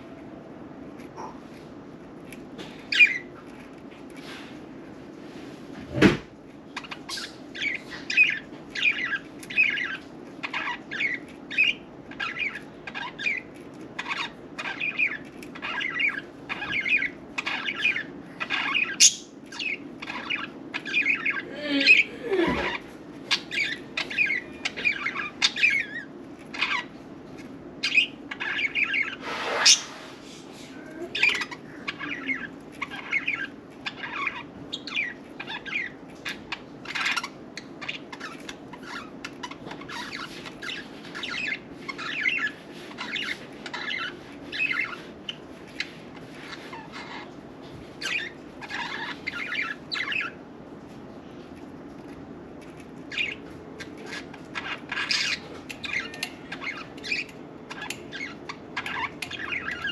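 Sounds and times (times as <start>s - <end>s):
budgerigars chattering: 6.8s - 26.9s, 31.2s - 47.4s, 48.0s - 50.4s, 53.1s - 59.9s.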